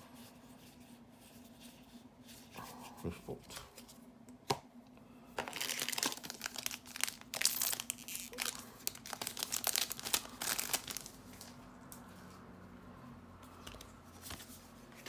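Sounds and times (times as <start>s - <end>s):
foil wrapper crinkling: 5.4s - 11.6s.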